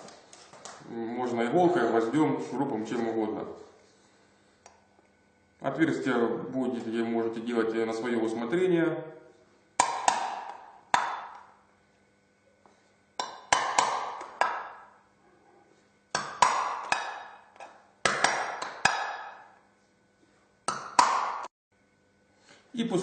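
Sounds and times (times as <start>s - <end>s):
hammer striking nail into tin can: 9.8s - 11.5s, 13.2s - 14.9s, 16.1s - 19.6s, 20.7s - 21.5s.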